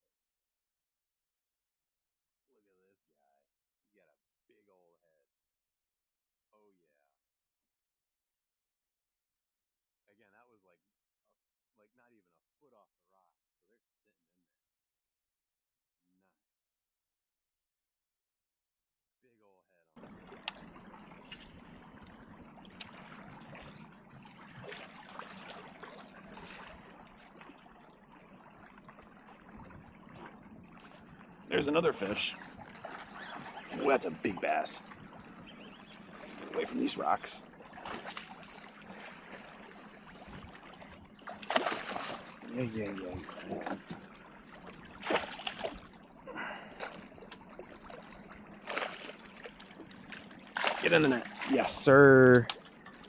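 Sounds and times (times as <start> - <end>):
water trickling and lapping: 20.0 - 53.0.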